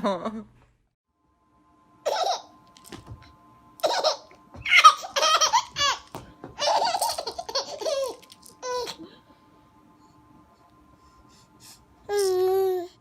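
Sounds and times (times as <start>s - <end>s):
baby giggling: 2.1s - 2.5s, 3.8s - 6.0s, 6.6s - 9.0s.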